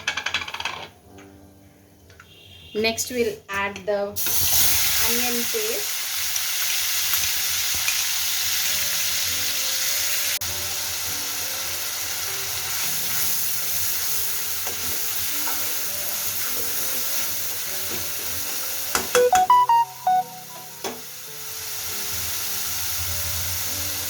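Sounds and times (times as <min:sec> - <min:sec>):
paste sizzling in hot oil: 0:04.2 - 0:18.9, 0:21.1 - 0:24.0.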